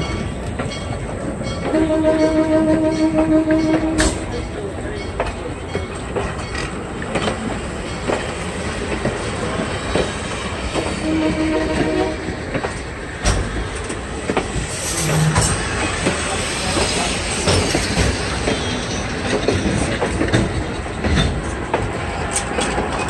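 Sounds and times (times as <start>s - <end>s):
train rumble: 0.0s - 23.0s
train wheels clicking over rail joints: 0.0s - 23.0s.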